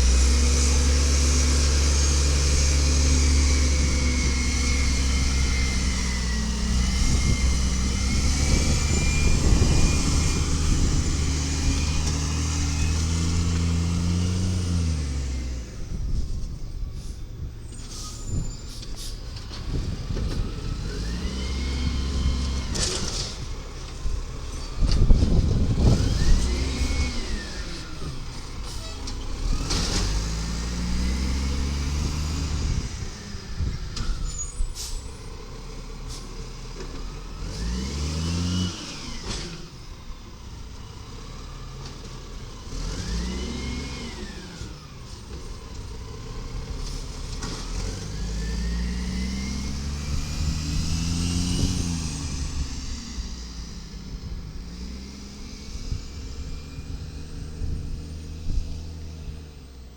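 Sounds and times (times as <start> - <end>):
garbage truck diesel engine revving: 0.0 - 16.2, 18.7 - 34.1, 34.7 - 59.9
air brake hisses: 17.0 - 19.3, 34.2 - 35.2.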